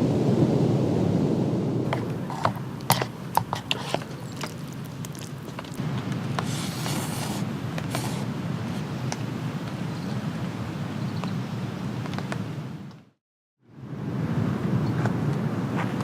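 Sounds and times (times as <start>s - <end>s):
rain: 0.0s - 10.7s.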